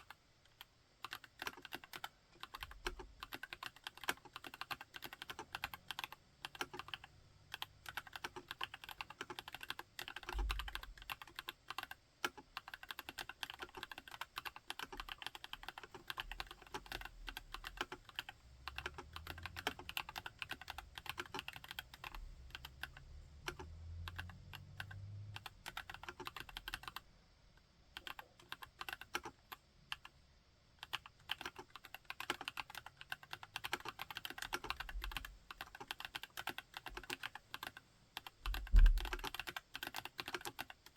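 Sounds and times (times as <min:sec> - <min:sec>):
mechanical keyboard typing: 0:00.0 - 0:27.0, 0:28.0 - 0:30.2, 0:30.8 - 0:40.9
deeper keystroke thuds: 0:38.5 - 0:39.3.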